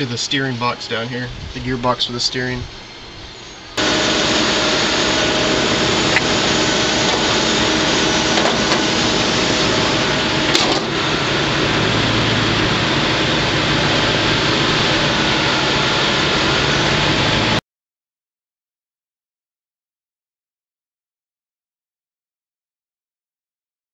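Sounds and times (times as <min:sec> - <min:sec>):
faint hum: 0:00.0 - 0:17.6
mechanical running noise: 0:01.3 - 0:17.6.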